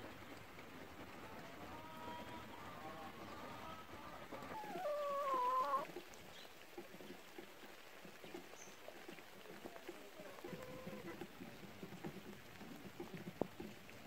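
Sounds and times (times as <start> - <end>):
chicken calling: 1.6 - 5.9.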